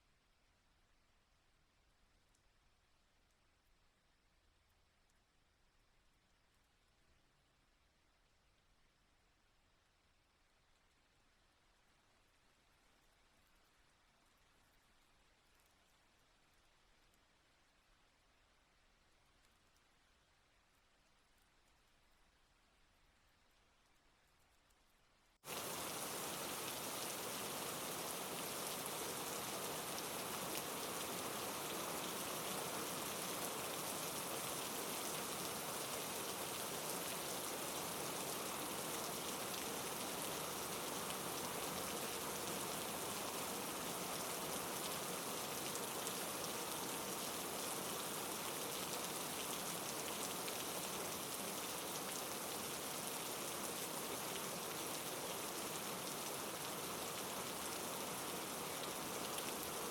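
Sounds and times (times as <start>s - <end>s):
heavy rain falling: 25.4s - 59.9s.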